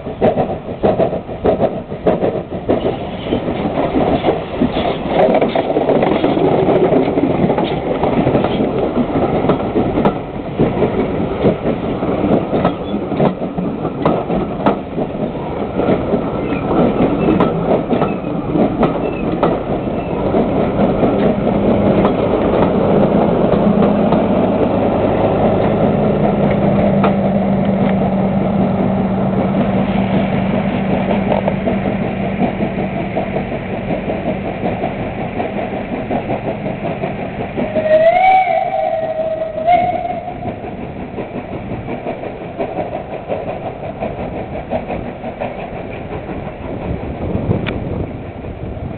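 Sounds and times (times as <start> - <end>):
train rumbling: 0.0 - 48.9
train whistle: 37.7 - 40.5.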